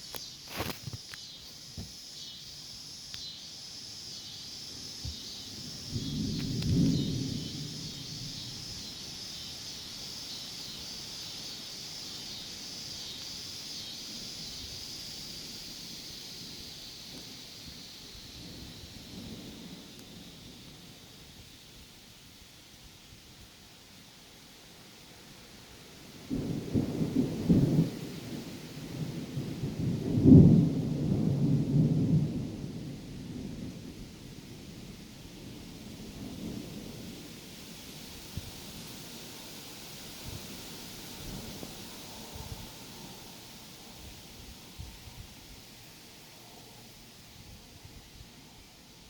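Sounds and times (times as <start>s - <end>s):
faint steady hiss: 0.0s - 49.0s
insects chirping: 0.0s - 49.0s
thunder rumbling: 4.9s - 10.0s, 14.1s - 21.3s, 26.3s - 45.4s.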